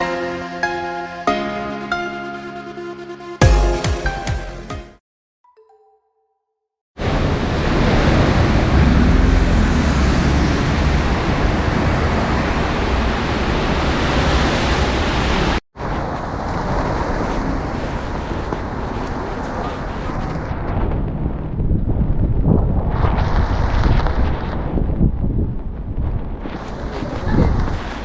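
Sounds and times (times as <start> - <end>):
steady outdoor roar: 7.0 - 28.0
wind buffeting microphone: 7.5 - 28.0.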